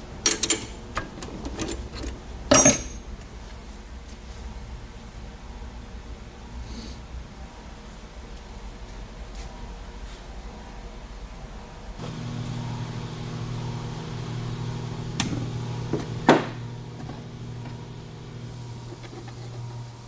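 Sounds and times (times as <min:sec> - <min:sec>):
motor humming: 0:12.0 - 0:20.0.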